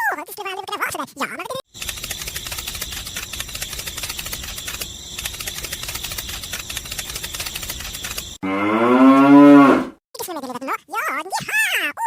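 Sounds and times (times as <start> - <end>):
small motor gears clicking: 1.8 - 8.4.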